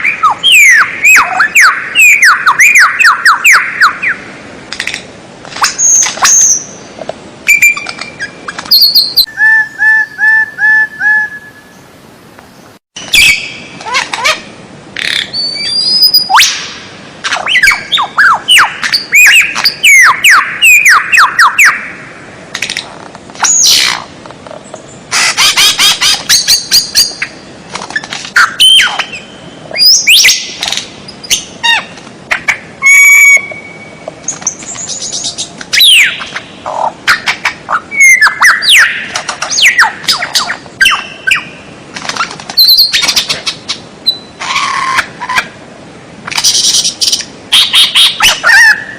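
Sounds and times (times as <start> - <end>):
songbird song: 0.0 - 4.8, 5.6 - 22.4, 23.1 - 45.6, 46.3 - 48.9.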